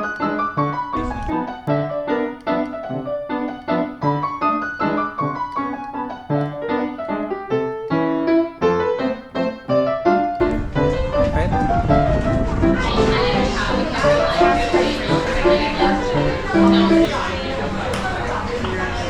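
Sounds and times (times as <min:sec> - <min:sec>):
piano melody over chords: 0:00.0 - 0:17.1.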